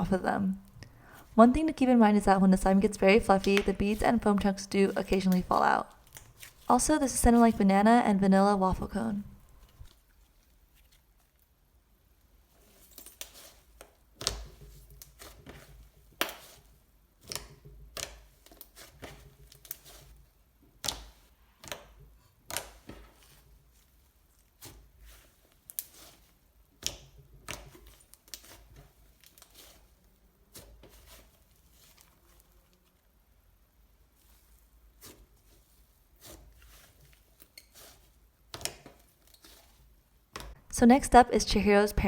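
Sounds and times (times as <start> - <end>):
slime squished with clicks and pops: 17.2 - 18.3.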